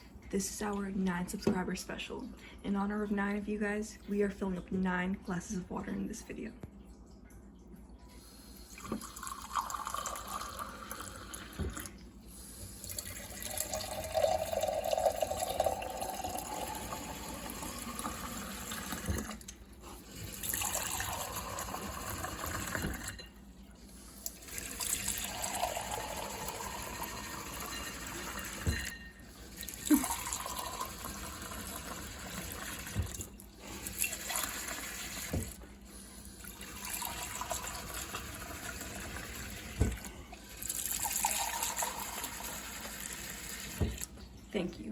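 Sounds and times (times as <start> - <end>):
water pouring into glasses: 8.2 - 23.4, 24.2 - 35.6, 36.2 - 44.2.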